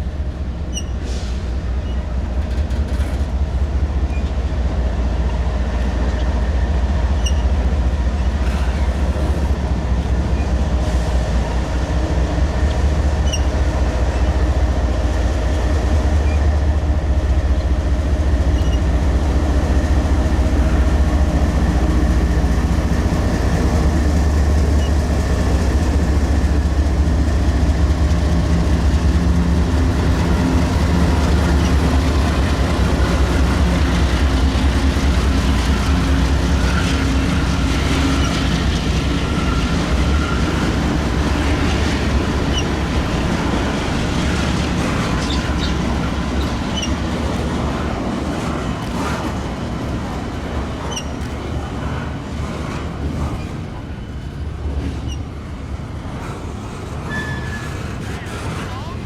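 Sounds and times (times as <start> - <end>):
diesel train engine drone: 0.0 - 59.0
train wheels squeaking and clicking: 0.6 - 10.8, 11.9 - 59.0.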